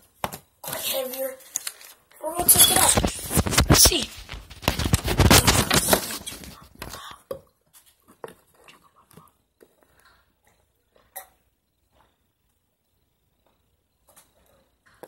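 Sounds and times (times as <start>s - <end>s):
paper rustling and crinkling: 0.7s - 7.0s.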